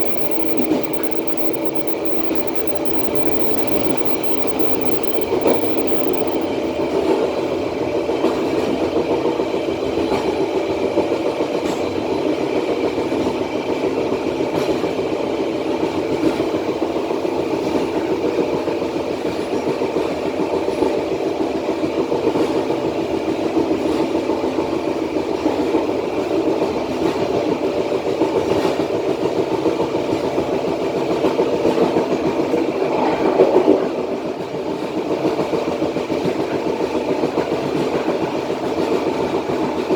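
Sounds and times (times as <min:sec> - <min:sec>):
faint clicks: 0:00.0 - 0:06.8.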